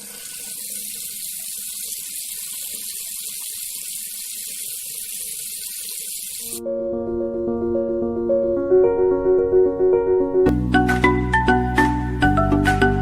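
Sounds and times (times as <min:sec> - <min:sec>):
high-pitched hiss: 0:00.5 - 0:06.6.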